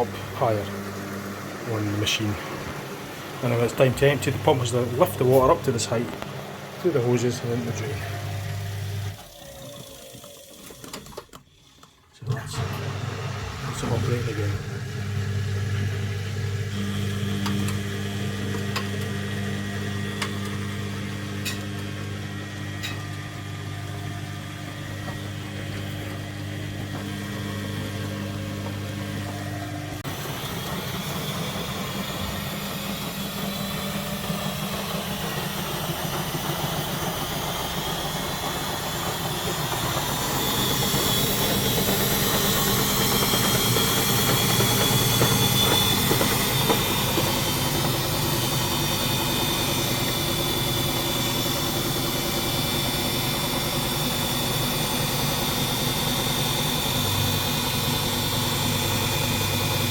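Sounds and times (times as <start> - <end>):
washing machine drum motor whine: 0.0 - 59.9
washing machine electric hum: 0.0 - 59.9.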